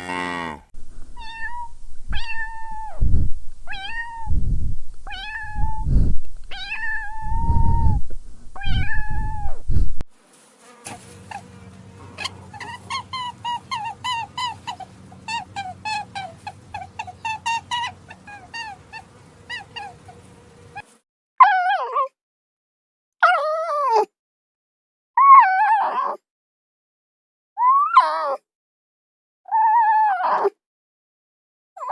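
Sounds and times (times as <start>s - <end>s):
cats meowing: 1.2s - 3.0s, 3.7s - 4.3s, 5.1s - 5.8s, 6.5s - 8.0s, 8.6s - 9.5s, 12.0s - 20.8s.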